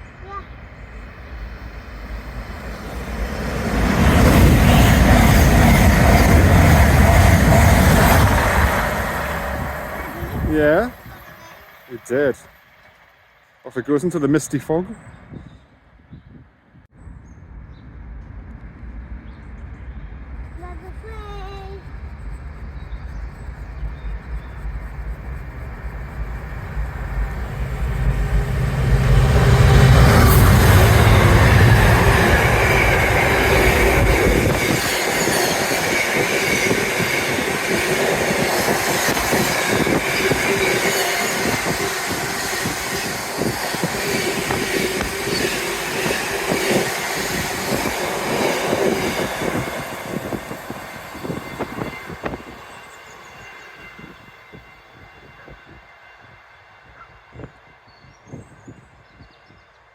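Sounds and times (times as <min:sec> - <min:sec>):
train deep rumble: 0:00.0 - 0:56.2
train wheels clattering over rails: 0:01.4 - 0:11.9, 0:24.0 - 0:53.4.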